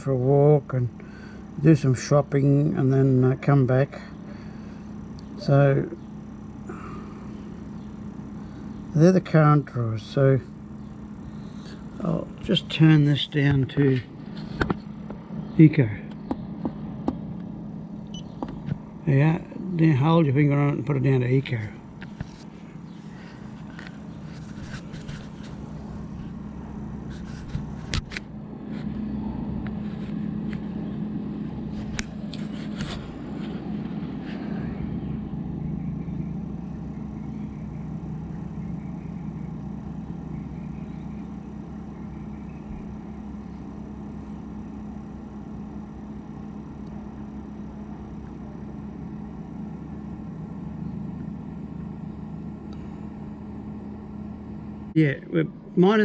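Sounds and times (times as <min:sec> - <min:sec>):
fridge compressor humming: 0:00.0 - 0:56.0.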